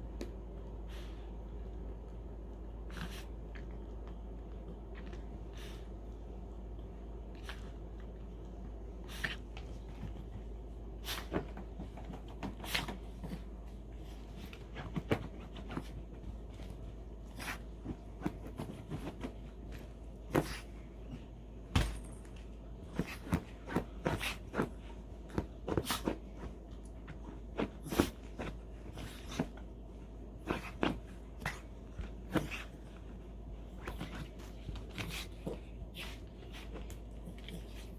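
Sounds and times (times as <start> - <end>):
steady low hum: 0.0 - 37.9
dog rubbing and rolling about: 22.9 - 37.9.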